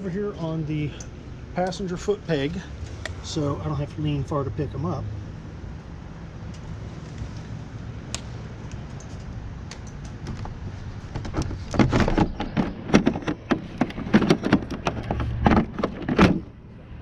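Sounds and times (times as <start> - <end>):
motorcycle windshield rattling: 10.1 - 16.6
loud clunks: 11.1 - 16.6.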